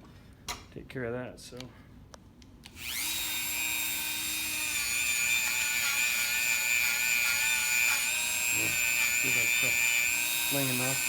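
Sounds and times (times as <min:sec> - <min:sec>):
rotary tool whining: 0:02.7 - 0:11.0.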